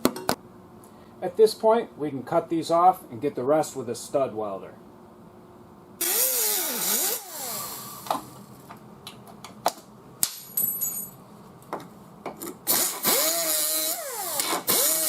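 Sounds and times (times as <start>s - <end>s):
die grinder cutting metal: 12.7s - 15.0s.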